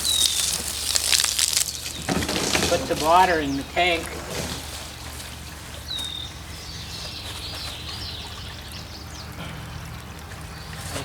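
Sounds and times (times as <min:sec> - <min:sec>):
hose water pouring into barrel: 0:00.0 - 0:05.9.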